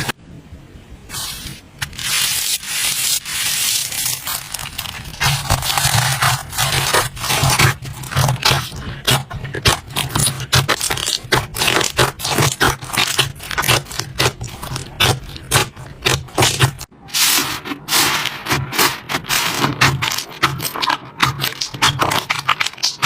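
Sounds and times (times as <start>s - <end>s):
slime squishing and popping: 4.1s - 16.9s, 17.9s - 23.0s.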